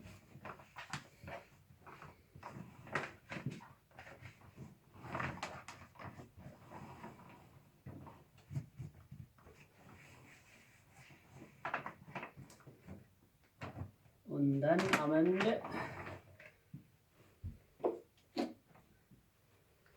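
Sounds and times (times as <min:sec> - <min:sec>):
faint knocks and taps: 0:16.7 - 0:18.1.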